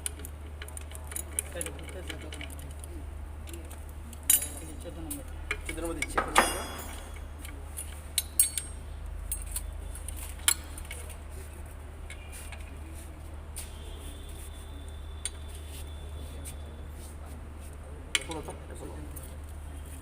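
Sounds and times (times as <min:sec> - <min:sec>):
metal hand tools clinking: 0:04.3 - 0:04.9, 0:05.6 - 0:09.7.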